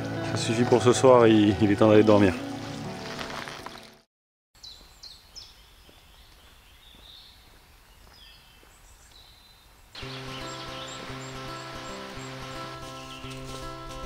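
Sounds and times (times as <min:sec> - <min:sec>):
background music: 0:00.0 - 0:04.0, 0:10.0 - 0:14.0
small birds calling: 0:04.6 - 0:14.0.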